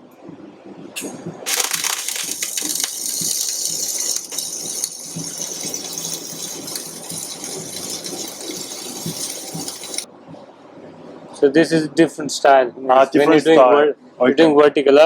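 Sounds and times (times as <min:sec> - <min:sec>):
welding arc crackling: 0:01.5 - 0:10.1.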